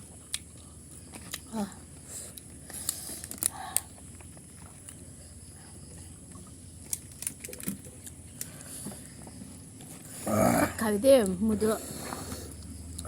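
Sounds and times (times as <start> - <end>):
chewing and mouth smacks: 0.0 - 5.2.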